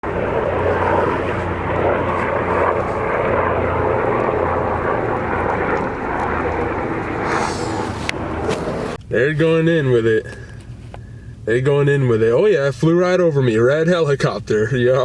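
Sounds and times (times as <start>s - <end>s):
helicopter rotor and engine: 0.0s - 9.0s.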